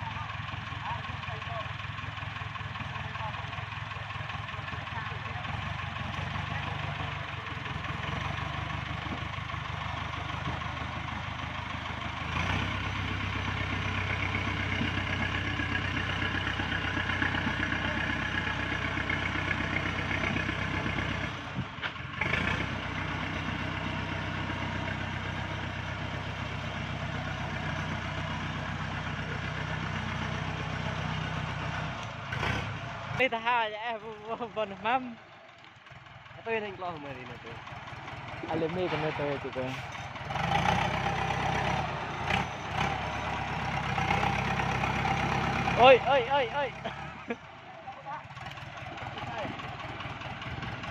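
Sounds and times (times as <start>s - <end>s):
truck engine running: 0.0s - 50.9s.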